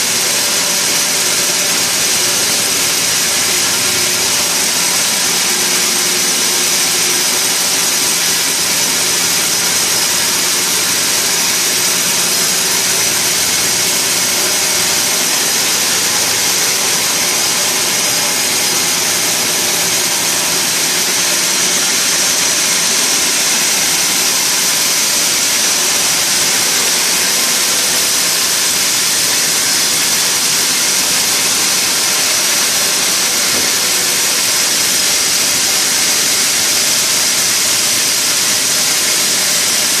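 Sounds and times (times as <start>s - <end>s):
sawmill machinery rushing: 0.0s - 40.0s.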